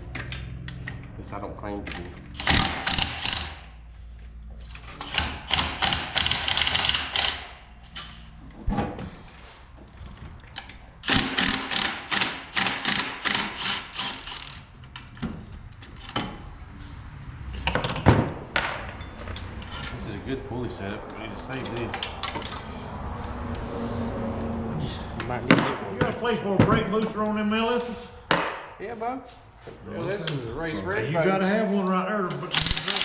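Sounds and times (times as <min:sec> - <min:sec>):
ratchet wrench clicking: 0:02.3 - 0:03.7, 0:05.0 - 0:08.1, 0:11.0 - 0:14.7, 0:32.5 - 0:33.0.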